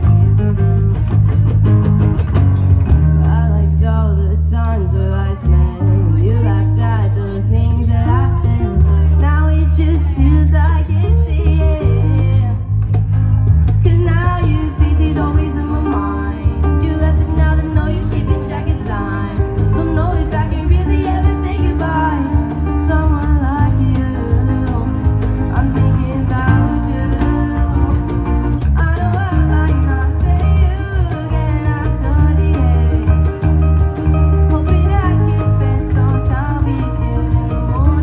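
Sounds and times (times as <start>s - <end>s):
guitar: 0.0s - 38.0s
heavy bass line: 0.0s - 38.0s
live band playing: 0.0s - 38.0s.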